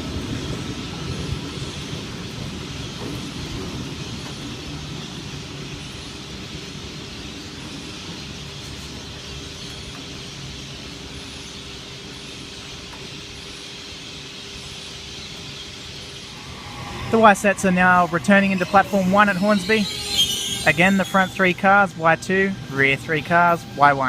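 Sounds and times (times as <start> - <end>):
electric train rumbling: 0.0 - 24.0
steady hum: 0.0 - 24.0.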